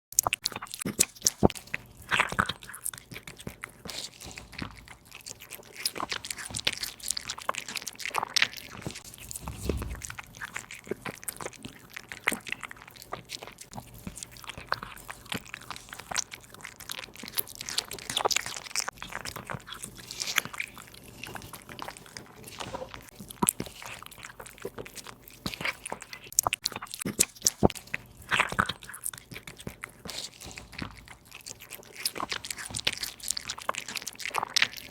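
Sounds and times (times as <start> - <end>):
cat crunching meat and bone: 0.2 - 10.0, 11.5 - 34.9.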